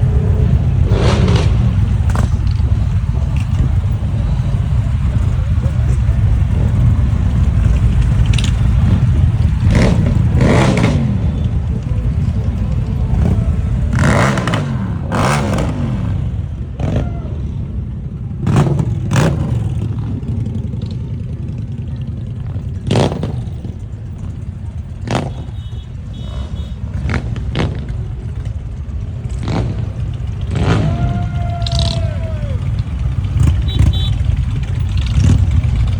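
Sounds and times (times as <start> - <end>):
motorcycle revving past: 0.0 - 2.6, 7.6 - 11.8, 12.9 - 17.0, 29.2 - 32.0
motorcycle engines rumbling: 0.0 - 35.9.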